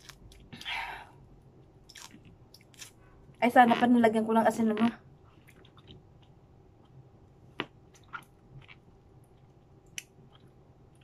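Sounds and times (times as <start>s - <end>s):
wet chewing and mouth smacks: 5.3s - 7.0s.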